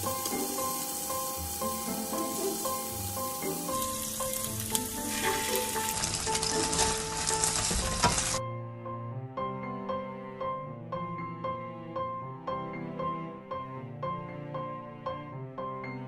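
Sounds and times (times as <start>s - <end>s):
meat sizzling in a frying pan: 0.0s - 8.4s
sauce poured into hot pan: 0.0s - 8.4s.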